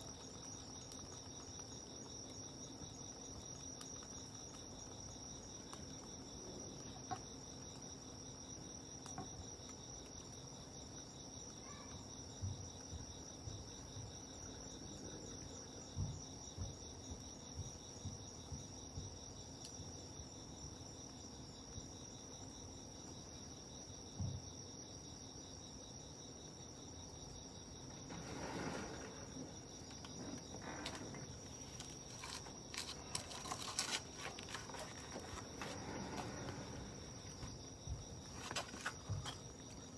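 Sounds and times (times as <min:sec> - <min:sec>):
crickets chirping: 0:00.0 - 0:39.9
rustling with crackly clicks: 0:29.9 - 0:35.8.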